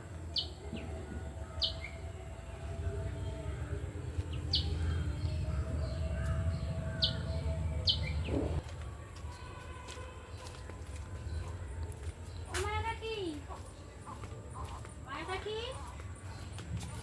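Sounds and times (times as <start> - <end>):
steady low rumble: 0.0 - 9.8
bird chirping: 0.0 - 10.4.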